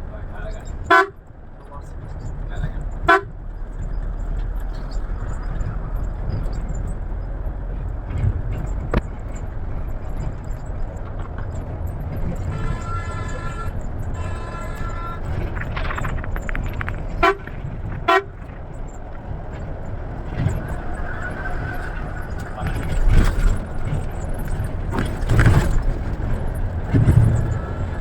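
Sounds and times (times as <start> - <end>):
bus engine rumble: 0.0 - 28.0
vehicle horn honking: 0.8 - 1.2, 3.0 - 3.4, 12.4 - 15.8, 17.1 - 18.5.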